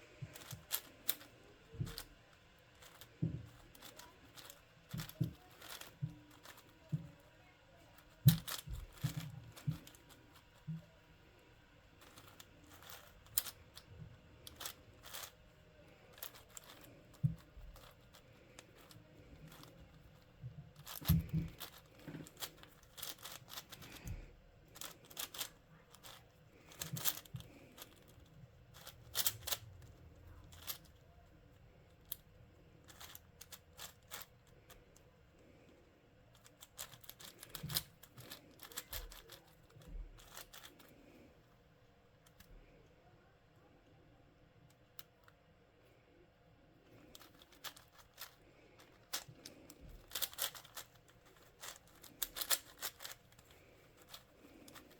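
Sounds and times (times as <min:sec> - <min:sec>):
plastic puzzle clicking: 0:00.2 - 0:07.2, 0:07.9 - 0:10.6, 0:12.0 - 0:15.4, 0:16.0 - 0:31.2, 0:31.9 - 0:32.2, 0:32.8 - 0:35.0, 0:36.3 - 0:40.9, 0:46.9 - 0:54.9.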